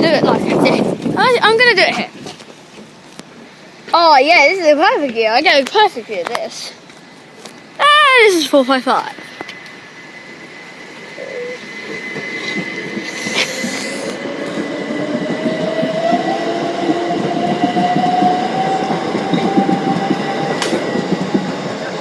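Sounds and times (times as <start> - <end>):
steady high-pitched tone: 7.8 - 15.0
electric train motor whine: 8.9 - 22.0.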